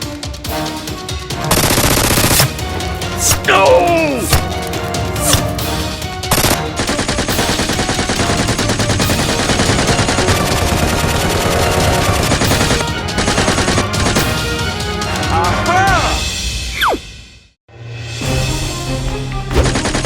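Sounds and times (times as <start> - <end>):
background music: 0.0 - 20.0
automatic gunfire: 6.3 - 14.3, 19.6 - 20.0.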